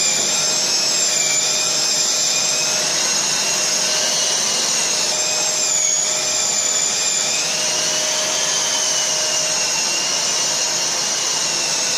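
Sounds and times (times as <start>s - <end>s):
drywall sander running: 0.0s - 11.9s.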